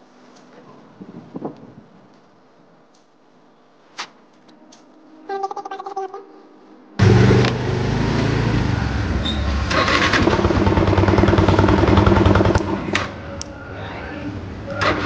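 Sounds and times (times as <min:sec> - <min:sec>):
motorcycle engine revving: 0:07.0 - 0:13.1.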